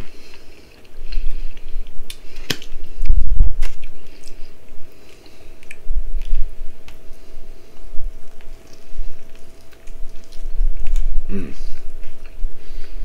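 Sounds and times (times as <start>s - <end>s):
person chewing: 0.0s - 13.0s
wet mouth clicks and smacks: 8.3s - 11.1s.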